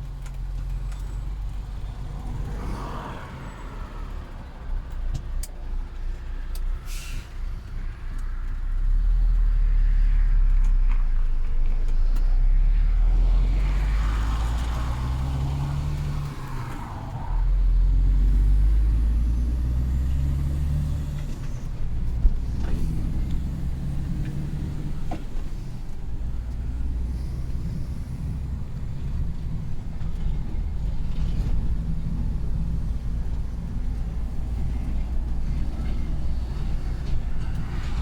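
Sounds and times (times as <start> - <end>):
heavy truck engine rumbling: 12.9 - 38.0.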